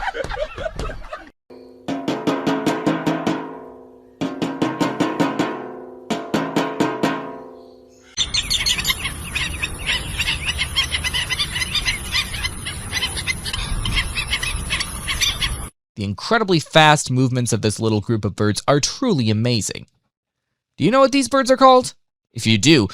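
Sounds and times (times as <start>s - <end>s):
rapid pitched drum strikes: 1.9s - 7.5s
flock of birds chirping: 7.4s - 15.7s.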